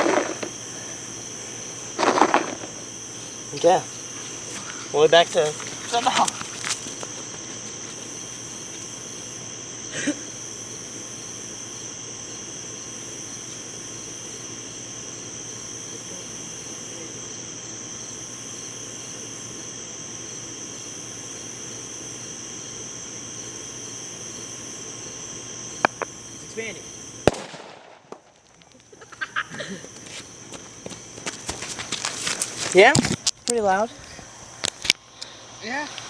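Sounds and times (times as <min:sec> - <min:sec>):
crickets chirping: 0:00.0 - 0:36.0
sharp crack: 0:27.2 - 0:28.6.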